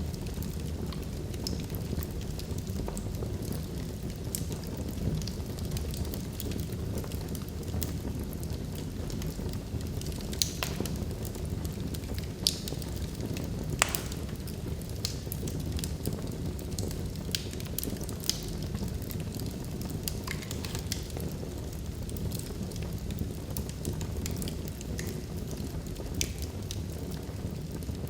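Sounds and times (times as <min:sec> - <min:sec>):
log fire crackling and popping: 0:00.1 - 0:28.0.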